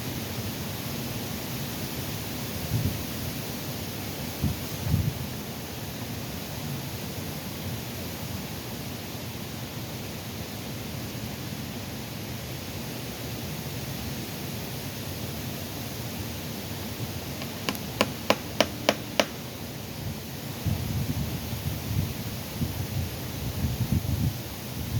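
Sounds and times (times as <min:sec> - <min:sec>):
hammer blows on wood: 0:17.4 - 0:19.6.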